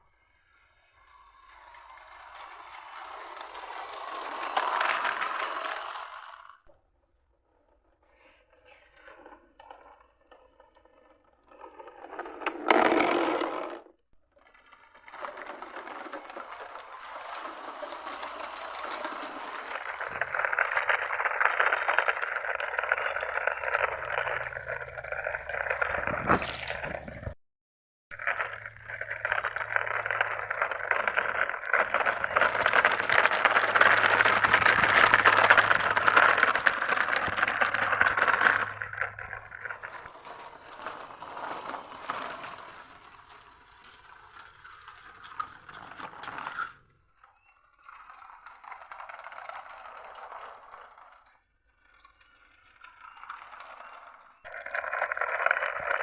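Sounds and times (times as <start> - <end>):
toy trucks rolling and scraping: 0.0 - 27.4, 28.2 - 56.0.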